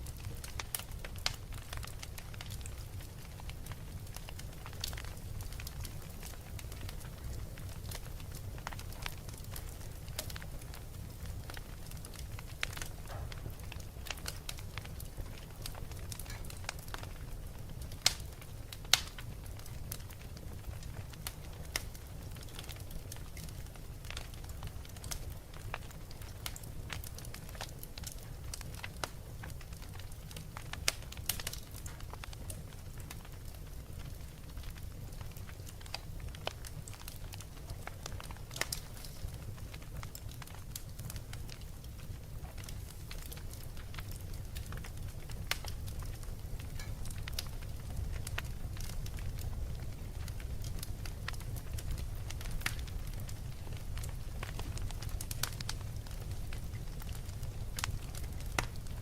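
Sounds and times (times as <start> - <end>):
fire crackling: 0.0 - 59.0
loud fire pops: 0.0 - 59.0.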